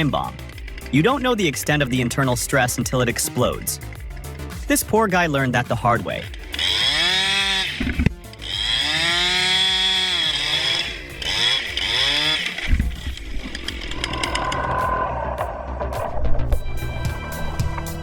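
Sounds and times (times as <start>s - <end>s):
chainsaw cutting: 0.0s - 1.6s, 6.2s - 14.6s.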